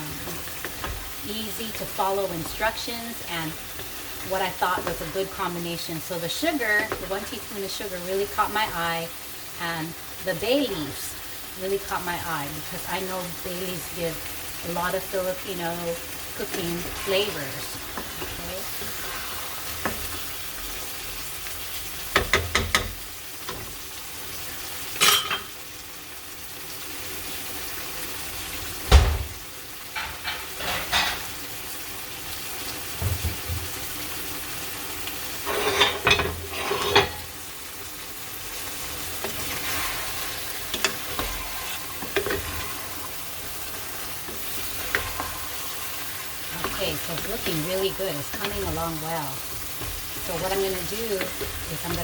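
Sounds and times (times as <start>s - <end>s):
food sizzling in a pan: 0.0s - 52.0s
utensil scraping and knocking pan: 35.5s - 37.3s, 39.1s - 52.0s.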